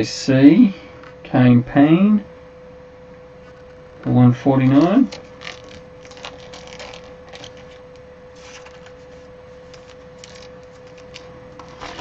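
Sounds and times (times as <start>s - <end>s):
faint steady hum: 0.0s - 12.0s
cards clicking and rustling: 5.1s - 12.0s.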